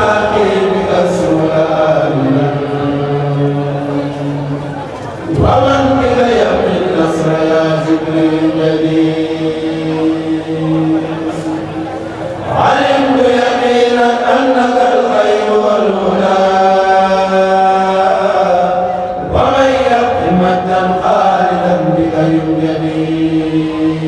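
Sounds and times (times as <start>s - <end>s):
group chanting unaccompanied: 0.0s - 24.0s.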